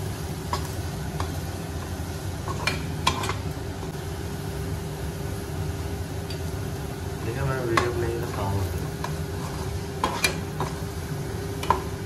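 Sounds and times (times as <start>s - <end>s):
onions sizzling in oil: 0.0s - 12.0s
spatula tapping pan: 7.7s - 8.0s, 10.0s - 10.8s, 11.6s - 12.0s.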